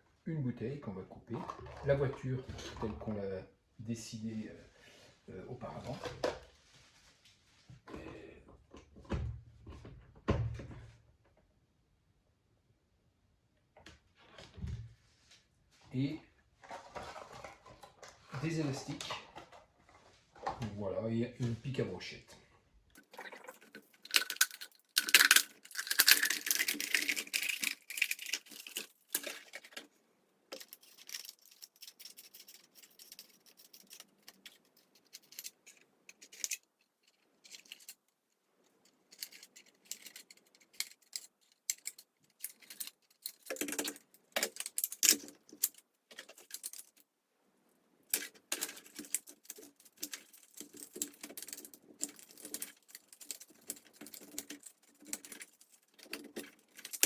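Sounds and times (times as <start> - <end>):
small plastic objects clicking and rattling: 23.0 - 47.1, 48.1 - 57.0.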